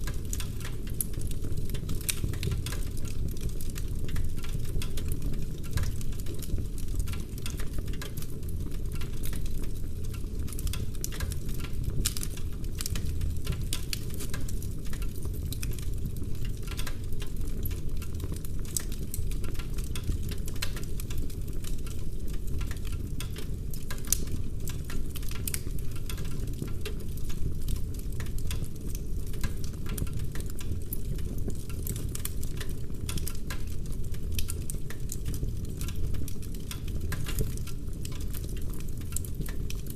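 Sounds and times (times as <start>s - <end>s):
burning logs crackling and popping: 0.0s - 39.9s
low rumble of fire: 0.0s - 39.9s.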